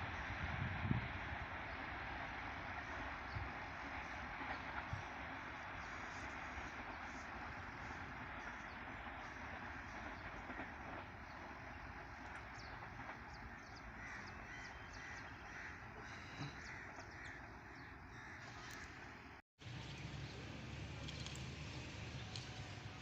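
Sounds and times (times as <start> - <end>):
faint outdoor background noise: 0.0 - 23.0
crows cawing: 13.5 - 19.0.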